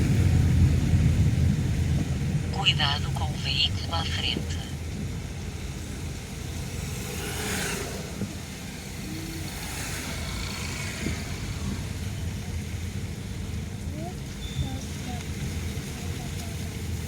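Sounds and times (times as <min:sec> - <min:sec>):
car engine and road rumble: 0:00.0 - 0:17.0
tyres hissing on wet road: 0:05.0 - 0:17.0.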